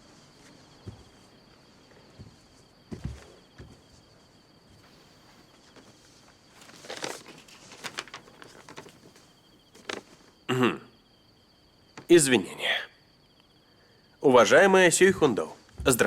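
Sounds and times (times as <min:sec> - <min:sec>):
quiet rustling: 0:00.0 - 0:10.4
crickets chirping: 0:00.0 - 0:16.0.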